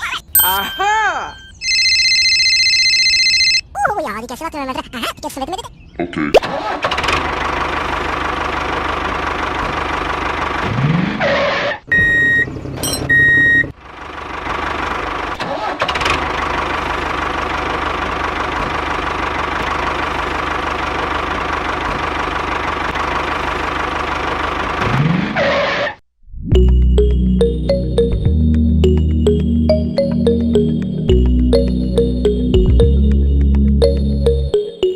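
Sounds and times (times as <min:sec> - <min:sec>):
high electronic beeps: 0:00.4 - 0:01.8
tractor engine running: 0:06.6 - 0:11.2, 0:12.0 - 0:25.3, 0:26.6 - 0:34.9.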